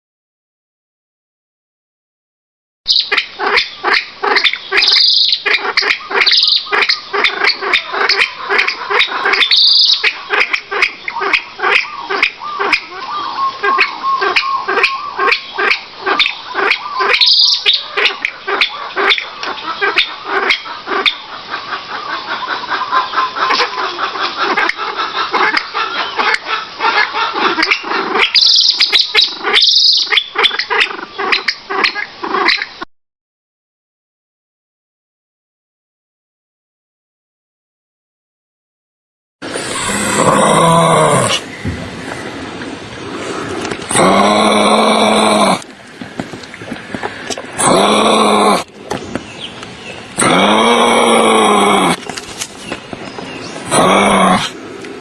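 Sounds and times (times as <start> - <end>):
high-pitched squawks: 2.9 - 19.2, 27.6 - 30.9, 39.4 - 41.6
chorus of animal calls: 2.9 - 32.8, 39.4 - 46.3, 46.9 - 55.0.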